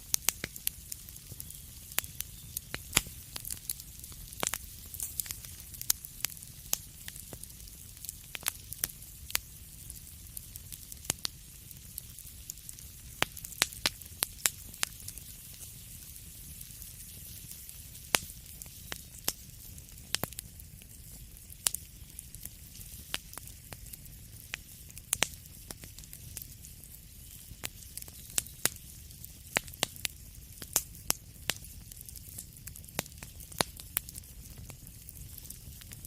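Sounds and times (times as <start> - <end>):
fire crackling with pops and snaps: 0.0 - 36.0.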